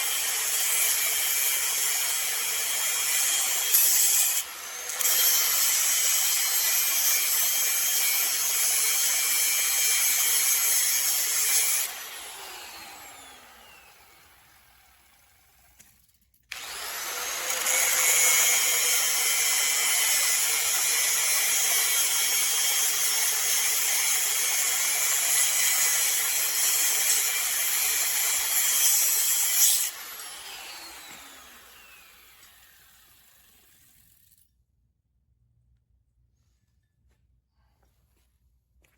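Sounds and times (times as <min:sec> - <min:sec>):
electric power tool motor running: 0:11.0 - 0:15.6, 0:16.5 - 0:34.3.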